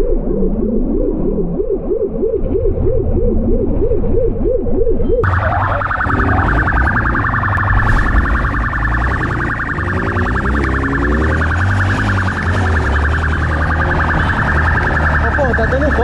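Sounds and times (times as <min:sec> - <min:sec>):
police siren pulsing: 0:04.1 - 0:16.0
vehicle engine revving: 0:05.2 - 0:16.0.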